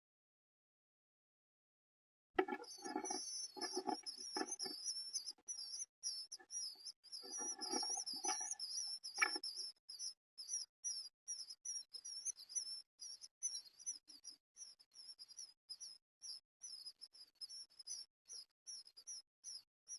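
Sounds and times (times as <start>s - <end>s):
nestlings begging chirps: 2.4s - 9.6s.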